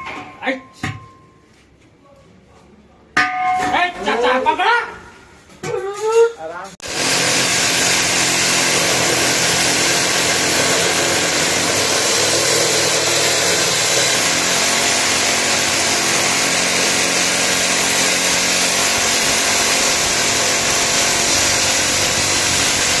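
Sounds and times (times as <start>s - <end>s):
cutter engine running: 6.8s - 23.0s
saw blade grinding concrete: 6.8s - 23.0s.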